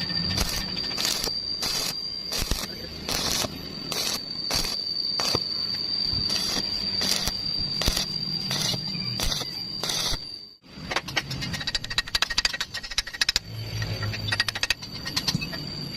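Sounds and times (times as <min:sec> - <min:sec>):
high whine: 0:00.0 - 0:12.6
welding crackle bursts: 0:00.3 - 0:05.5, 0:06.3 - 0:10.3.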